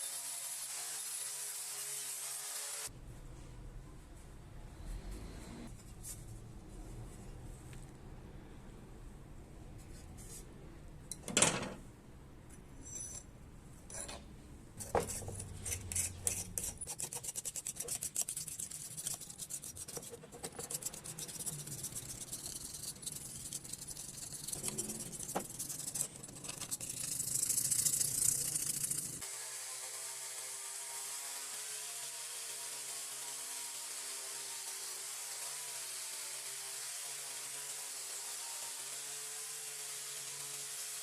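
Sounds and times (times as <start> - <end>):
fast back-and-forth scraping: 14.8 - 29.2.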